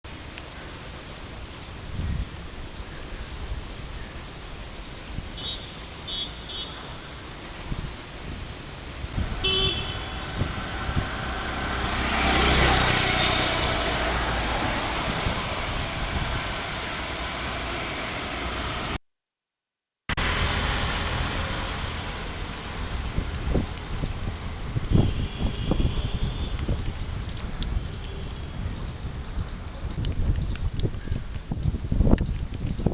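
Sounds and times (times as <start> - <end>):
traffic on wet road: 0.1 - 19.0, 20.1 - 32.6
vehicle passing close: 9.2 - 19.0, 20.2 - 24.7
car horn toot: 9.3 - 10.4, 25.0 - 26.6.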